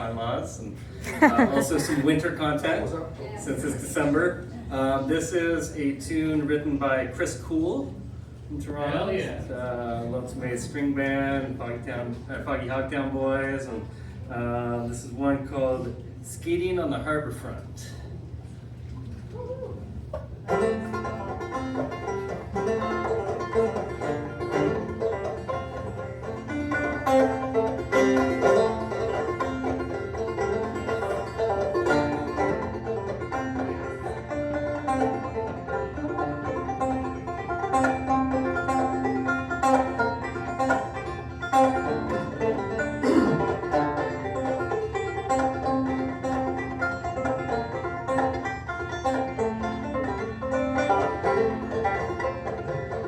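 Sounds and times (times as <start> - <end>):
acoustic guitar backing: 20.2 - 53.0
clawhammer banjo: 20.4 - 53.0.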